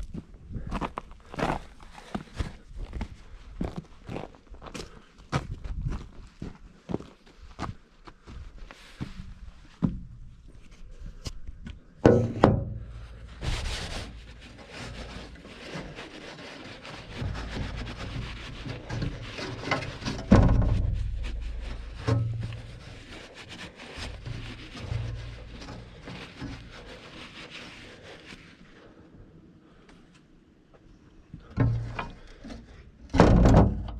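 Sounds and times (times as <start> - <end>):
loud thumps: 12.0 - 14.0
knocks and rubbing of handling: 12.0 - 28.5, 31.4 - 33.9.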